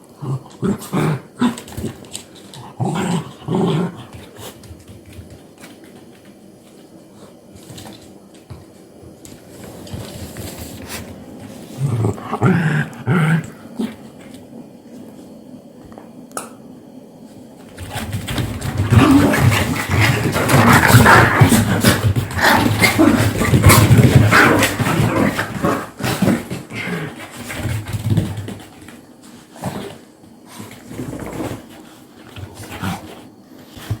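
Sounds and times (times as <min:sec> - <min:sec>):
dogs fighting: 0:17.8 - 0:28.9.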